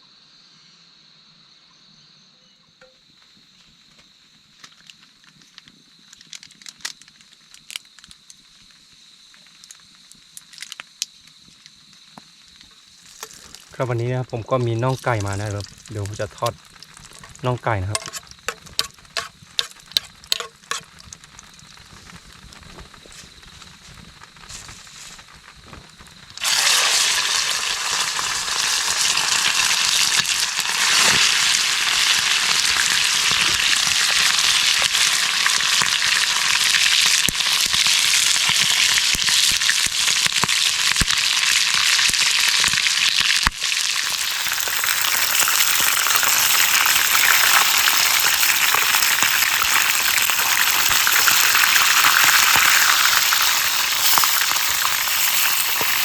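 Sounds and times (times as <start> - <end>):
meat sizzling in hot oil: 12.1 - 56.0.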